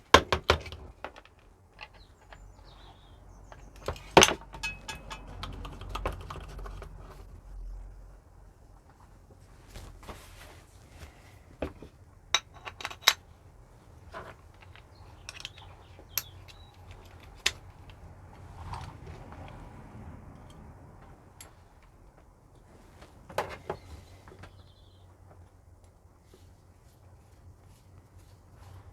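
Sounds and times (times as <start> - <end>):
small metal parts clinking: 1.1 - 6.7, 12.3 - 13.2, 14.1 - 18.0.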